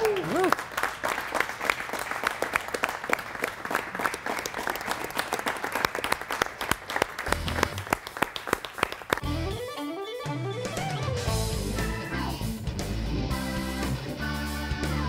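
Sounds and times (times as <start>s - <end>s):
audience clapping: 0.0s - 9.6s
bass and guitar music: 7.3s - 7.8s, 9.2s - 15.0s.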